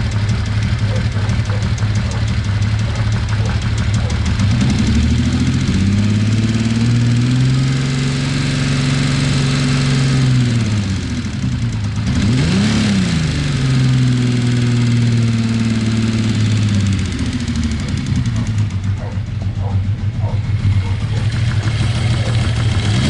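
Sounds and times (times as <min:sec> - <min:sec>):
light engine ticking: 0:00.0 - 0:07.6, 0:13.4 - 0:23.0
motorcycle engine idling: 0:00.0 - 0:07.9, 0:08.6 - 0:23.0.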